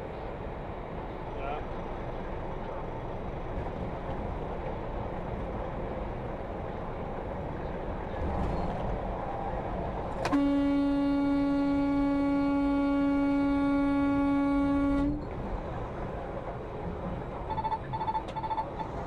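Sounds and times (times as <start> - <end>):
road and engine noise: 0.0 - 19.0
loud truck horn blast: 10.3 - 15.2.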